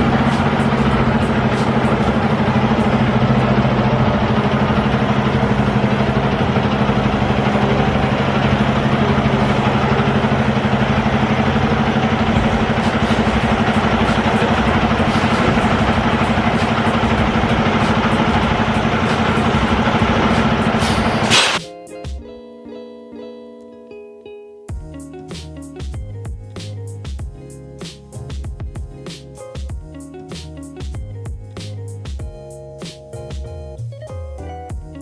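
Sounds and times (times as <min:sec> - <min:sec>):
diesel truck engine droning: 0:00.0 - 0:21.6.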